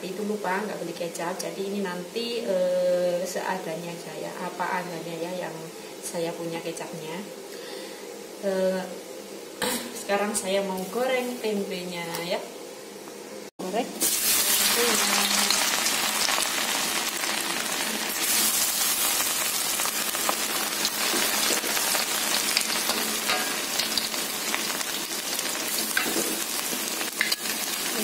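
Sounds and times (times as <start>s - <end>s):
food sizzling in hot oil: 13.8s - 28.0s.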